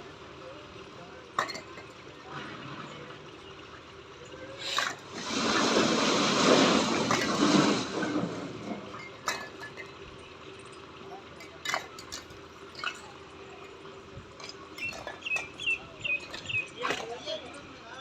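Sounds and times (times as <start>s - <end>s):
bricks clattering down: 4.6s - 10.0s, 11.4s - 13.1s, 14.4s - 17.2s.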